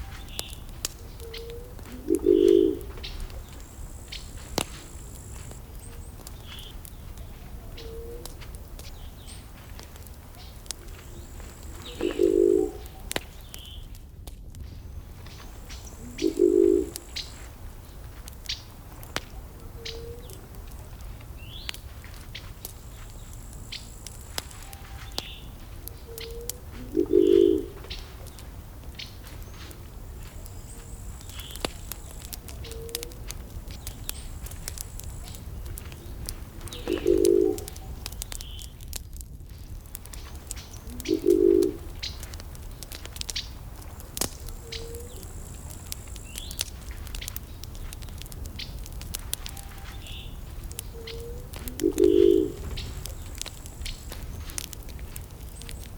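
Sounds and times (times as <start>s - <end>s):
small birds chirping: 0.0s - 14.0s, 14.6s - 55.9s
wood fire crackling and popping: 0.0s - 55.9s
dove cooing: 1.0s - 3.7s, 10.8s - 13.2s, 15.9s - 17.4s, 19.4s - 20.5s, 26.1s - 27.9s, 36.4s - 38.2s, 40.8s - 41.9s, 44.5s - 45.4s, 49.4s - 54.7s.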